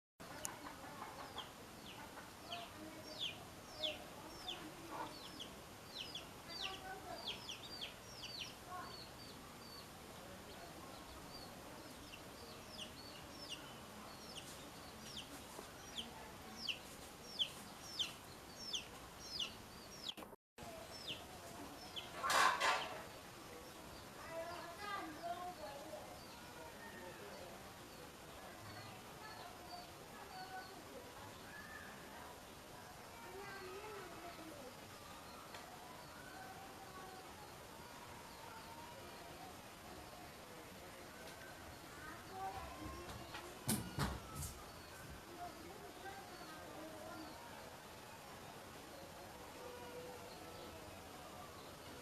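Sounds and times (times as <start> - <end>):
birds chirping: 0.2 - 32.1.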